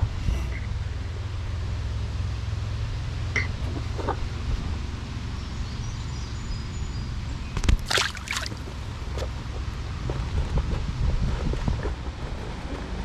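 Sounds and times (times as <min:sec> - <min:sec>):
wind buffeting the microphone: 0:07.6 - 0:13.0.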